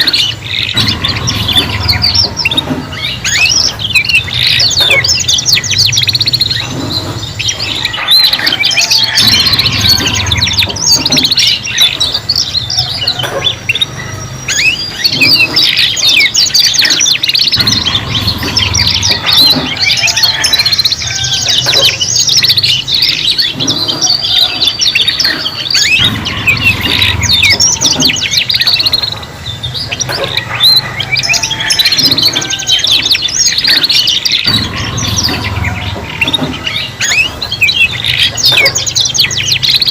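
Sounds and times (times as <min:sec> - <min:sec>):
canaries singing trills: 0:00.0 - 0:39.9.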